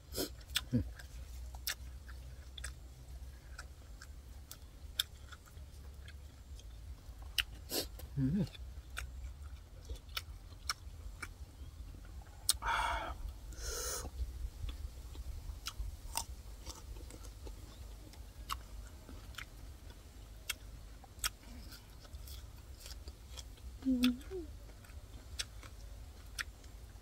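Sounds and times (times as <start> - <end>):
man chewing and crunching greens: 0.0 - 27.0.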